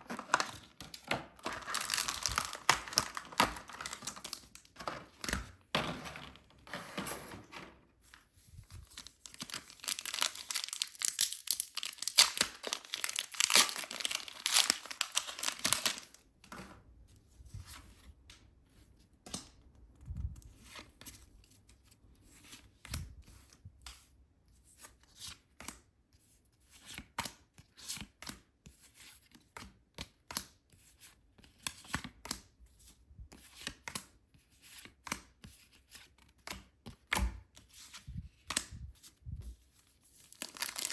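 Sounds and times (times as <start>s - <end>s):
plastic packaging crinkling and tearing: 0.0s - 5.4s, 8.8s - 16.2s, 40.2s - 40.9s.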